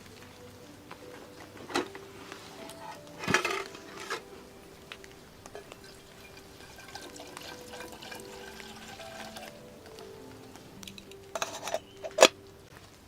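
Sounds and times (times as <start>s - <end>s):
liquid being poured: 2.6s - 12.4s.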